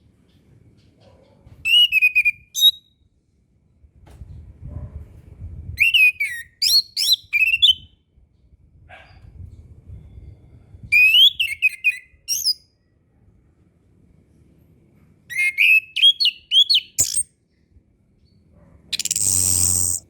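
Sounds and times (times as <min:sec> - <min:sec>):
faint low rumble: 0:03.2 - 0:05.8, 0:08.2 - 0:10.9
thrush singing whistled notes: 0:15.3 - 0:17.2, 0:19.0 - 0:20.0.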